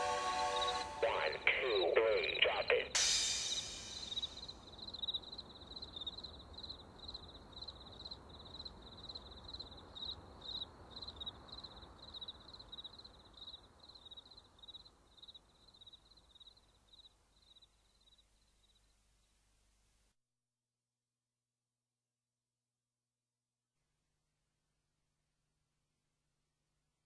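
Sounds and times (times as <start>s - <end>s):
crickets chirping: 0.6s - 19.4s.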